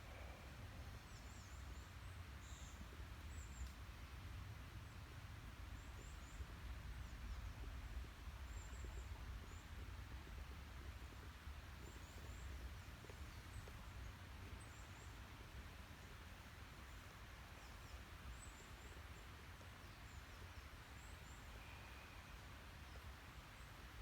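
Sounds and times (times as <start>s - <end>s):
small birds chirping: 5.7s - 23.7s.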